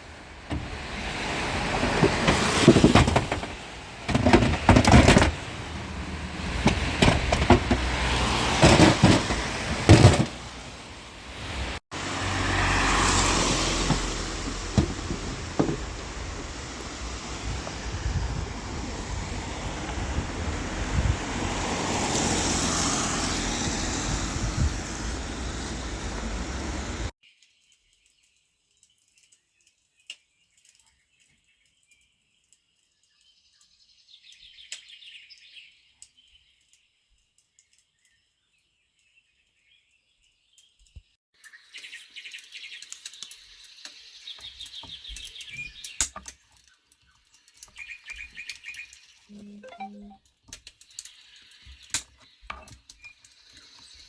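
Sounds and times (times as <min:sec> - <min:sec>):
birds chirping: 0:39.6 - 0:54.0.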